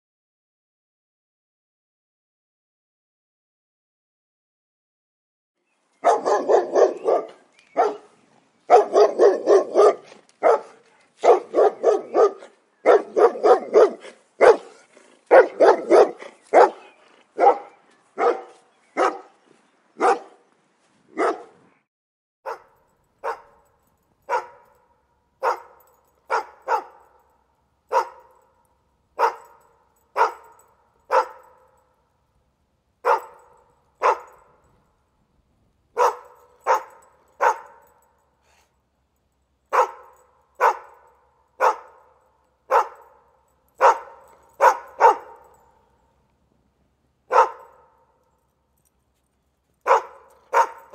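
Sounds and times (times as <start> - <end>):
dog barking: 6.0 - 19.4, 20.0 - 20.5, 21.1 - 21.6, 22.5 - 28.6, 29.2 - 31.8, 33.0 - 34.7, 36.0 - 38.1, 39.7 - 45.8, 47.3 - 48.1, 49.8 - 50.9.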